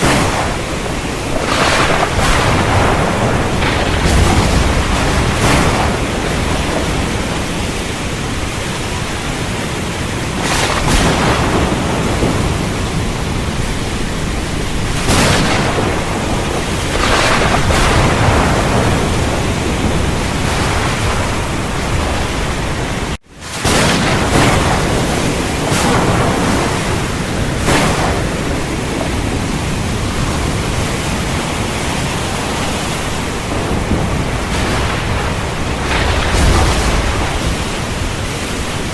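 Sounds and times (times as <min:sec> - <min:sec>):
heavy rain falling: 0:00.0 - 0:38.9
thunder rumbling: 0:00.0 - 0:38.9.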